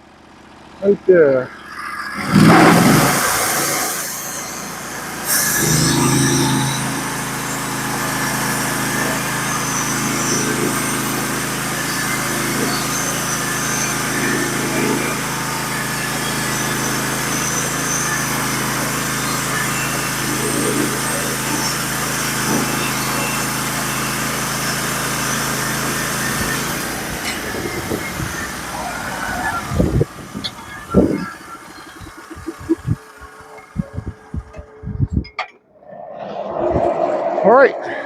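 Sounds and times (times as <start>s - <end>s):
band saw cutting log: 2.4s - 28.7s
gasoline engine running: 5.7s - 35.3s.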